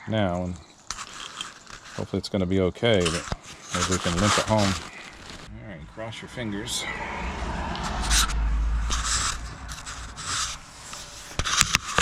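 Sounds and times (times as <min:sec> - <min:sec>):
rubbing and scraping noise: 0:00.7 - 0:12.0
car engine running rough: 0:05.5 - 0:11.4.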